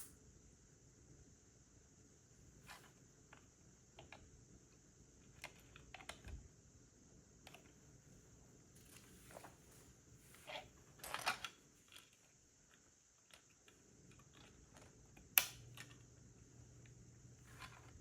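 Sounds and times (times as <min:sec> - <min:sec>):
sharp plastic snap: 0:15.2 - 0:15.9.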